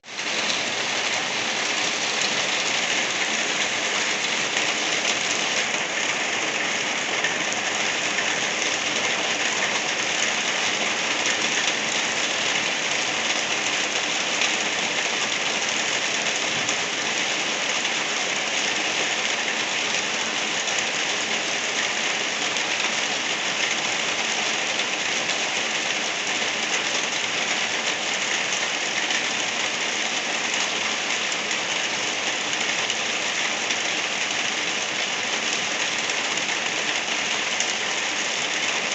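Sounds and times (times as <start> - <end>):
gentle rain falling: 0.0 - 38.9.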